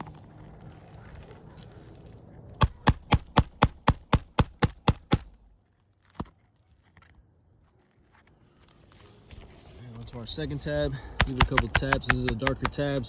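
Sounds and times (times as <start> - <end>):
hammer striking shingle: 2.6 - 5.5, 6.1 - 6.3, 11.1 - 13.0.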